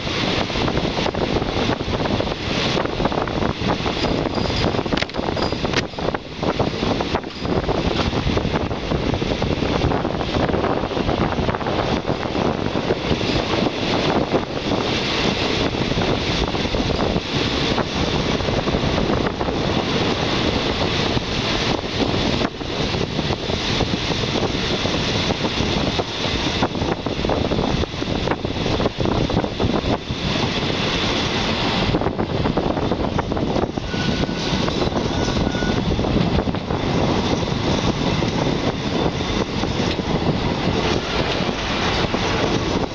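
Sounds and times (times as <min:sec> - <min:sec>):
rushing wind: 0:00.0 - 0:42.9
train wheels rumbling on rails: 0:00.0 - 0:42.9.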